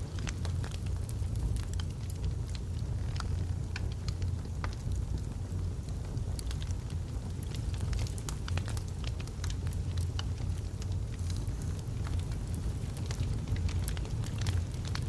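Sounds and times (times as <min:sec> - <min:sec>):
burning logs crackling and popping: 0:00.0 - 0:15.0
fire flames rumbling: 0:00.0 - 0:15.0.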